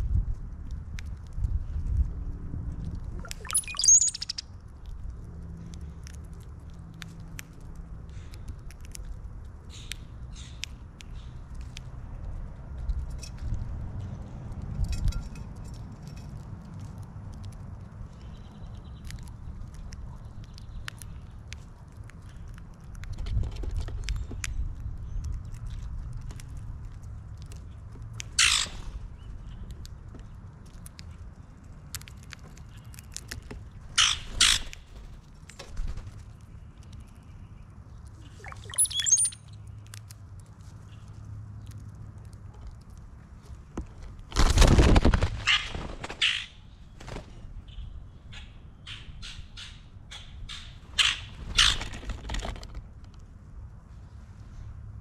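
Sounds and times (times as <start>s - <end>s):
birds pecking at seed: 0.1s - 47.2s
harsh bird squawks: 3.3s - 4.4s, 28.4s - 28.8s, 34.0s - 34.7s, 48.9s - 51.9s
short high bird calls: 3.3s - 4.4s, 38.4s - 39.5s.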